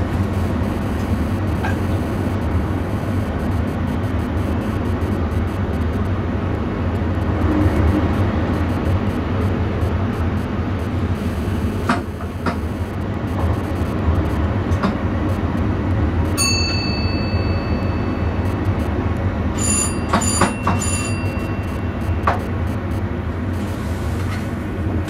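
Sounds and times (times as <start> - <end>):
train running rumble: 19.6 - 21.6.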